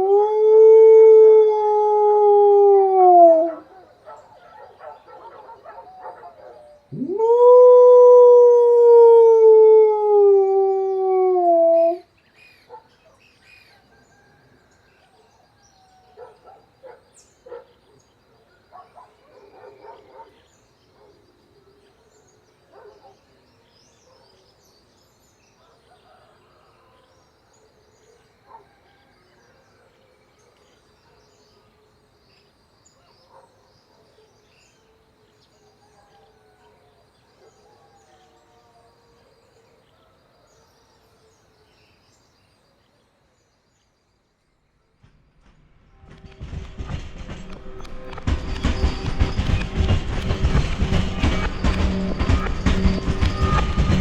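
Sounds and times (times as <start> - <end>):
steady high-pitched drone: 46.1 - 54.0.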